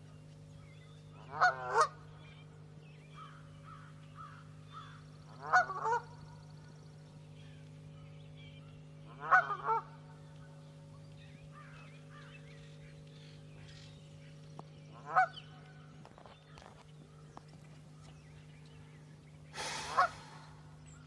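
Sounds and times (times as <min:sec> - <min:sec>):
steady low hum: 0:00.0 - 0:21.0
geese honking: 0:01.2 - 0:02.1, 0:03.2 - 0:06.2, 0:09.1 - 0:10.1, 0:14.9 - 0:15.7, 0:19.6 - 0:20.8.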